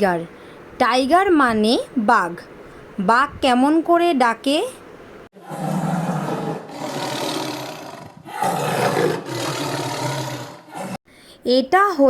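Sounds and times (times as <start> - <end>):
tiger roaring: 5.4 - 11.0.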